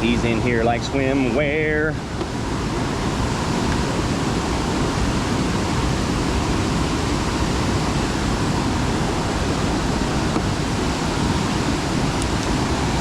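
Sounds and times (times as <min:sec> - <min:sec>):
low water rumble: 0:00.0 - 0:13.0
rushing water roar: 0:00.0 - 0:13.0.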